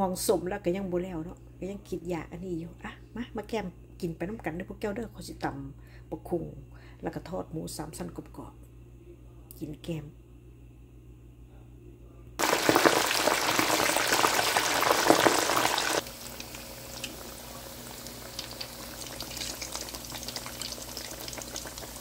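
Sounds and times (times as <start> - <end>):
meat deep-frying in hot oil: 12.4 - 22.0.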